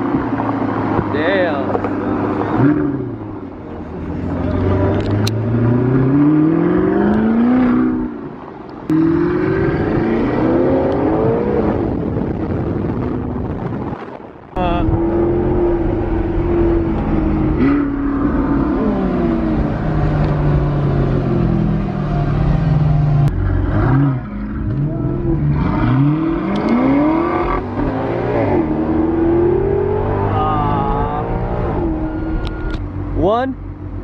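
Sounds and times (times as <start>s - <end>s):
car engines revving: 0.0s - 34.0s.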